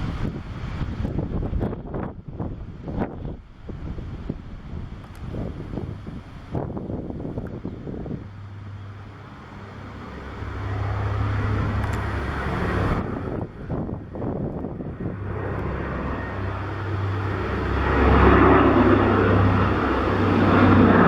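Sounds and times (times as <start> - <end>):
propeller plane flying past: 0.0 - 21.0
wind buffeting microphone: 0.0 - 21.0.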